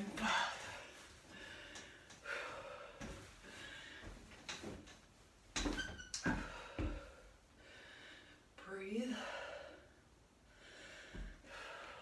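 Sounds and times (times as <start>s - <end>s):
heavy breathing: 0.2s - 4.3s.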